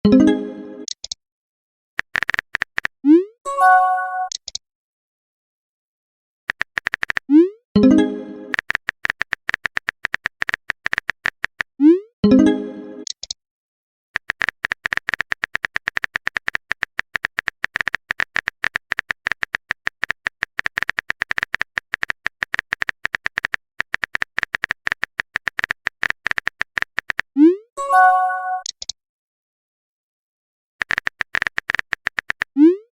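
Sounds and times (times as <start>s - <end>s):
phone keyboard typing clicks: 2.0s - 3.0s, 4.2s - 4.6s, 6.5s - 7.3s, 8.5s - 11.7s, 14.2s - 27.3s, 28.5s - 29.0s, 30.8s - 32.6s
message sent swoop and chime: 27.8s - 28.7s.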